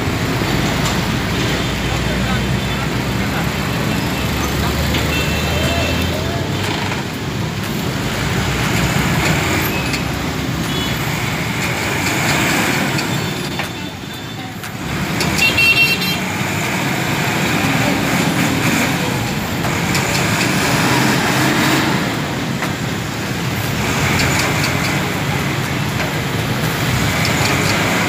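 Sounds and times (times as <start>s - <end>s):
road traffic passing: 0.0s - 28.0s
vehicle horn: 15.4s - 16.2s.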